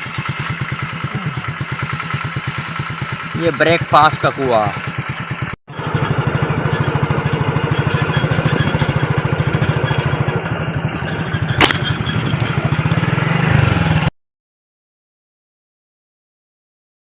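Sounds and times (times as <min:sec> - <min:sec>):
engine running with rapid pulse: 0:00.0 - 0:14.1
sharp click: 0:11.5 - 0:12.5.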